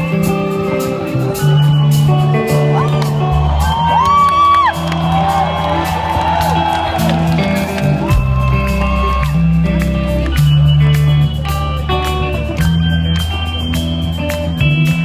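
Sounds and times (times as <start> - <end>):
bass notes: 0.0 - 15.0
guitar melody: 0.0 - 15.0
drum beat: 2.1 - 11.2.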